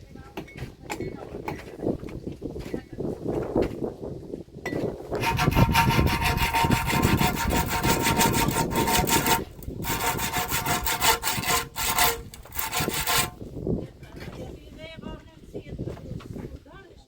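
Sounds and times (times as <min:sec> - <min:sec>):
power saw cutting: 0:05.2 - 0:13.4.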